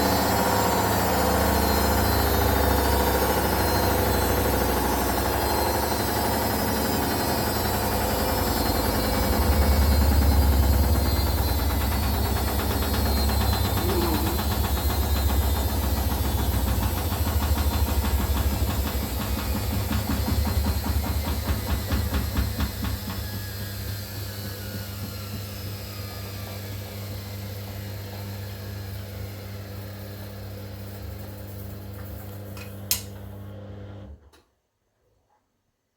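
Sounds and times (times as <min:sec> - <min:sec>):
motor whine falling in pitch: 0:00.0 - 0:17.5
washing machine spinning down: 0:00.0 - 0:34.3.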